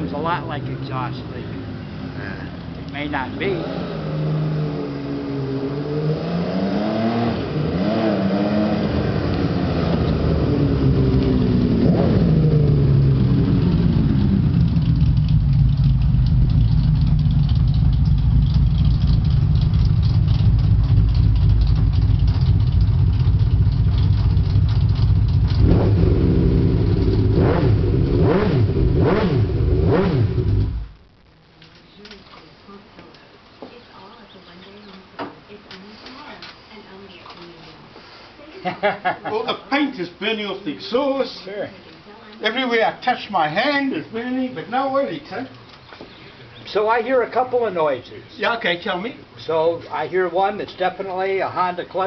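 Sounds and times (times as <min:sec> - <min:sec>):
motorcycle engine revving: 0:01.2 - 0:31.0
clutch rattle: 0:14.0 - 0:25.9.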